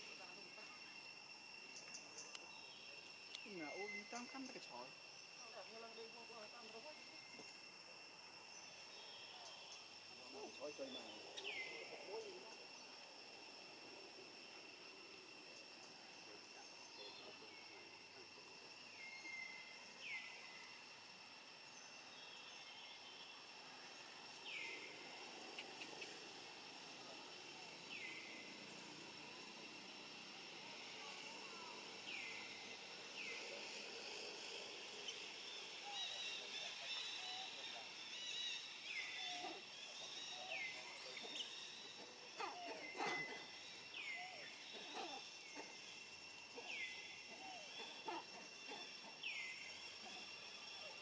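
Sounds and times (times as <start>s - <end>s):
high insect drone: 0.0s - 51.0s
faint clicks: 3.3s - 3.5s, 25.5s - 26.2s.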